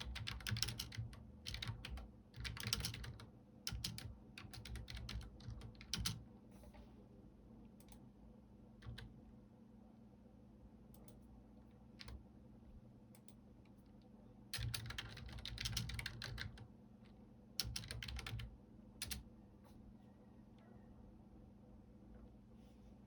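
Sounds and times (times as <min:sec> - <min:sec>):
computer keyboard typing: 0:00.0 - 0:06.2, 0:08.8 - 0:09.2, 0:12.0 - 0:12.2, 0:14.5 - 0:16.7, 0:17.6 - 0:19.3.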